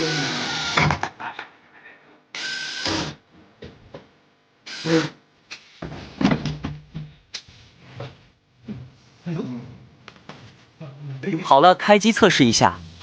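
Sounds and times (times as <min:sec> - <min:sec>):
power screwdriver bursts: 0:02.4 - 0:03.2, 0:04.7 - 0:05.6.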